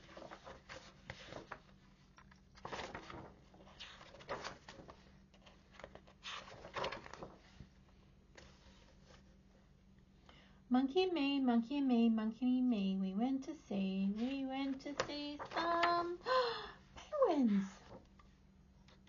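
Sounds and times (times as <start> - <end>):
book pages rustling: 0.0 - 9.7, 14.1 - 16.1.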